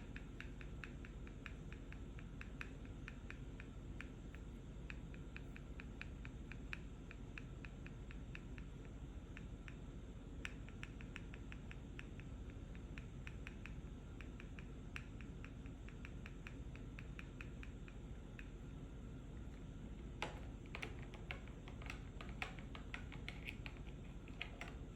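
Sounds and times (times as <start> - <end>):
low background hum: 0.0 - 24.9
fingers tapping on pill box: 19.4 - 24.9.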